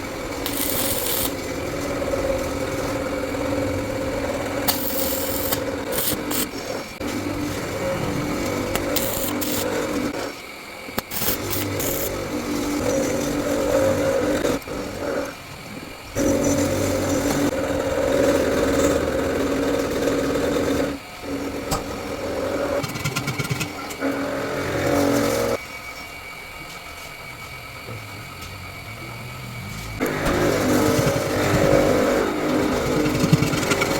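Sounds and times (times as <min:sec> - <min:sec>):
power tool motor running: 0:00.0 - 0:10.3, 0:11.0 - 0:15.3, 0:29.3 - 0:33.9.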